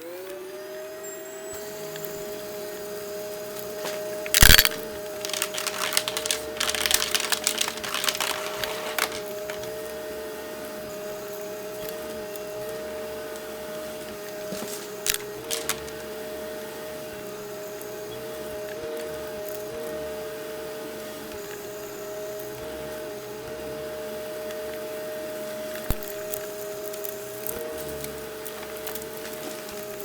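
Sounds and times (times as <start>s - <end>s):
vacuum cleaner running: 0.0s - 30.0s
crunchy debris crackling: 3.8s - 9.9s, 14.0s - 16.0s.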